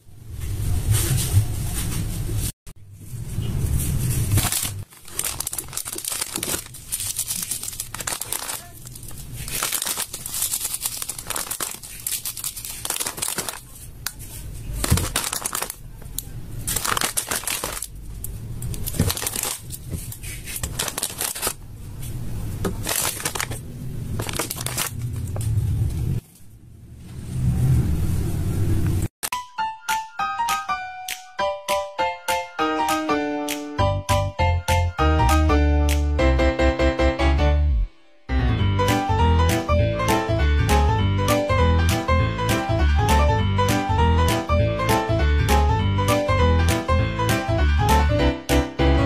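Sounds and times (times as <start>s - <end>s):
slime squishing by hand: 4.2s - 21.6s.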